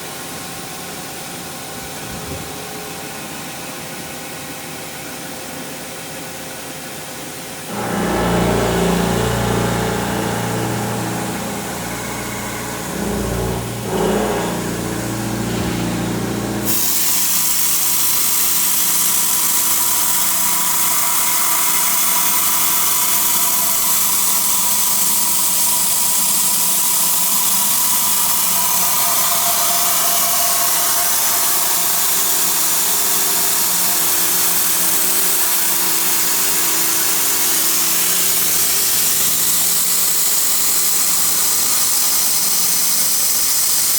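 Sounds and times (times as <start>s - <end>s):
faint steady whine: 7.7s - 16.7s
low machine hum: 7.7s - 17.3s, 25.8s - 39.6s
loud steady hiss: 7.7s - 43.9s.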